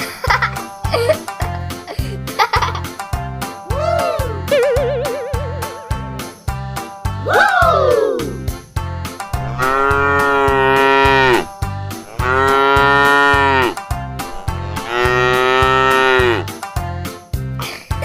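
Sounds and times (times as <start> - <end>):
children's music beat: 0.0 - 18.0
cow mooing: 9.3 - 16.5.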